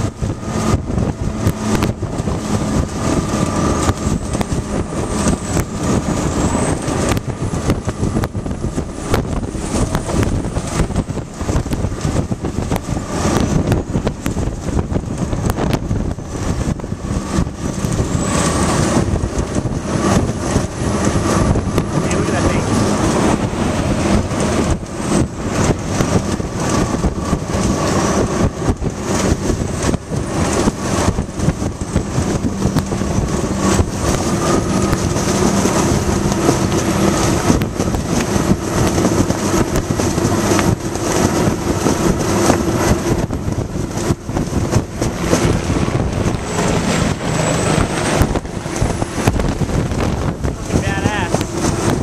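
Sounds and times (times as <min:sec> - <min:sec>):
helicopter turbine whine: 0:00.0 - 0:52.0
vehicle engine and road noise: 0:00.0 - 0:52.0
wind buffeting microphone: 0:00.0 - 0:52.0.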